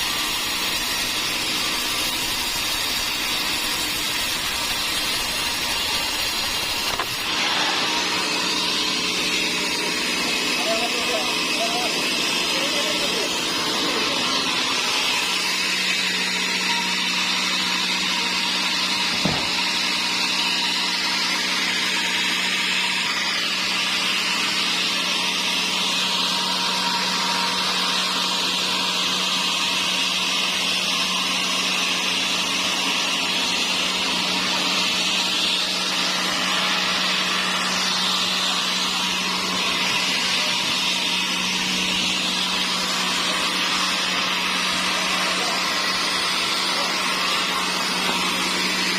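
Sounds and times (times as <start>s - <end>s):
saw cutting wood: 0.0s - 48.9s
short knock: 19.1s - 19.6s.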